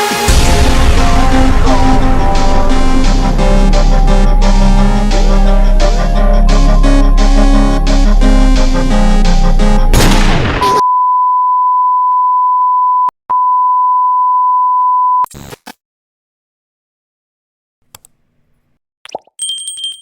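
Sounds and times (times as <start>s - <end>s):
background music: 0.0s - 10.5s
electronic beep tone: 10.6s - 15.3s.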